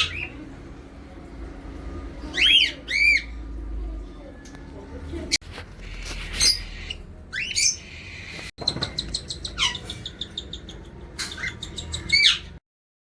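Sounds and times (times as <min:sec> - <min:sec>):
parrots chirping and whistling: 0:00.0 - 0:00.4, 0:02.2 - 0:03.4, 0:05.8 - 0:12.6.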